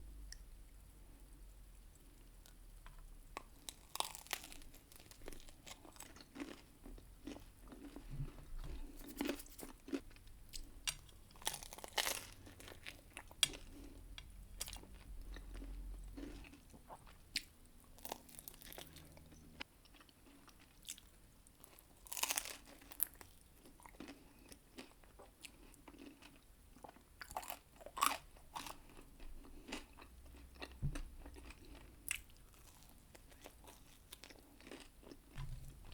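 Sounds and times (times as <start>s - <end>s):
chewing and biting pizza: 3.7s - 10.7s, 21.7s - 35.9s.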